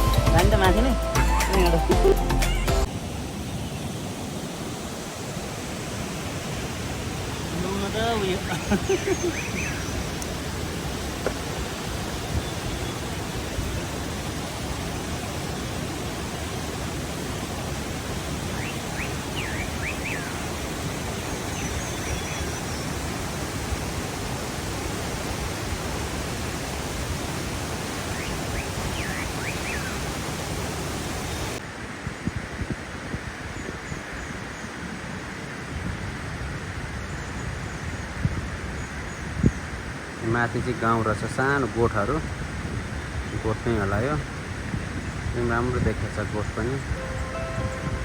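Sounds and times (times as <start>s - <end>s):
waterfall roaring: 0.0s - 31.7s, 45.7s - 48.0s
high chirps: 46.9s - 48.0s.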